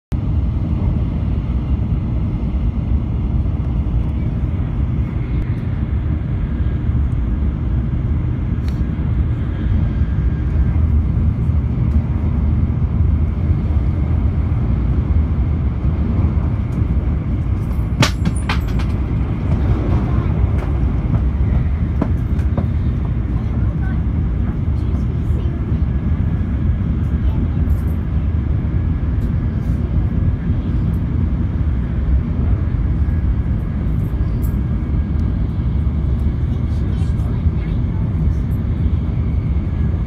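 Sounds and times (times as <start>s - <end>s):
train rumble inside cabin: 0.1s - 40.0s.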